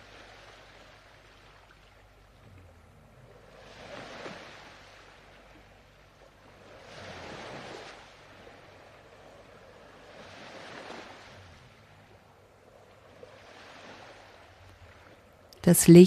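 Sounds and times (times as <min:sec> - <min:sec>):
low steady background: 0:00.0 - 0:16.0
ocean waves washing: 0:00.0 - 0:16.0.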